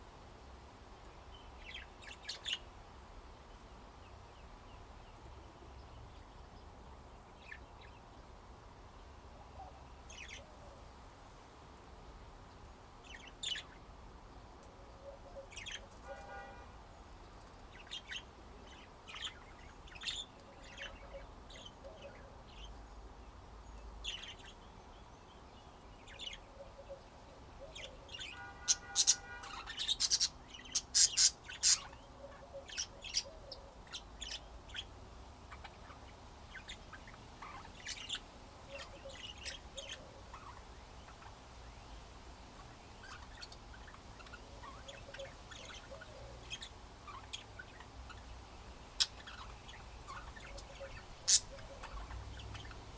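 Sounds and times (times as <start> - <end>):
budgerigars chirping: 27.6 - 34.9, 35.5 - 41.3, 42.6 - 52.8.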